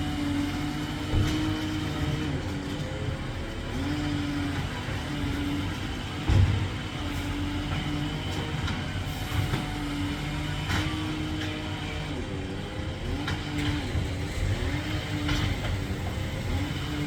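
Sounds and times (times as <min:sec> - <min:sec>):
garbage truck engine running: 0:00.0 - 0:17.0.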